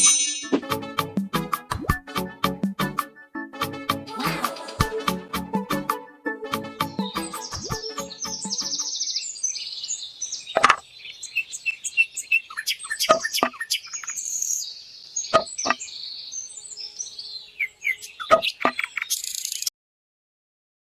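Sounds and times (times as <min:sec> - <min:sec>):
small birds chirping: 0:06.8 - 0:19.7.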